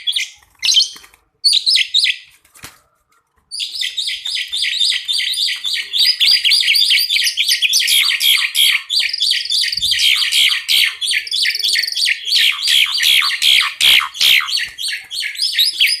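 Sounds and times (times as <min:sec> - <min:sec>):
starlings singing: 0:03.7 - 0:16.0.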